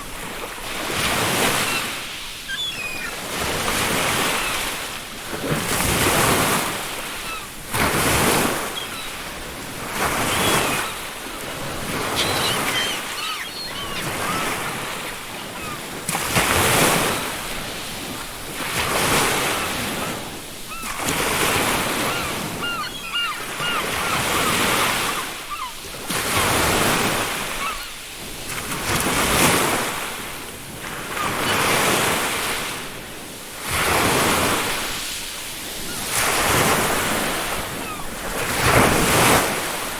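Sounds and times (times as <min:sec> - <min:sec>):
ocean surf breaking on beach: 0:00.0 - 0:39.9
faint seagull calls: 0:01.3 - 0:03.4, 0:07.1 - 0:07.6, 0:08.2 - 0:09.4, 0:10.0 - 0:11.1, 0:11.8 - 0:15.9, 0:19.5 - 0:21.0, 0:21.8 - 0:25.8, 0:27.3 - 0:28.0.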